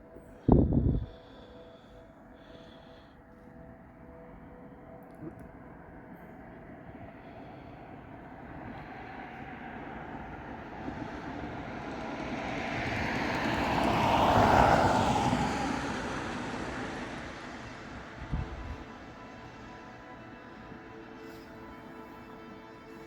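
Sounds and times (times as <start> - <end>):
vehicle passing by: 9.6 - 18.8.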